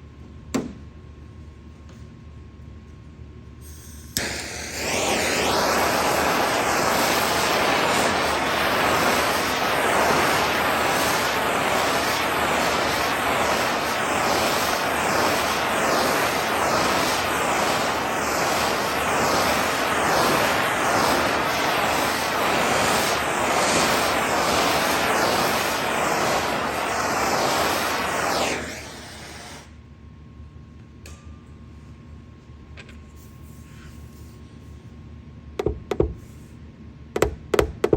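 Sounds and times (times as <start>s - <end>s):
air blower rushing: 3.7s - 29.8s.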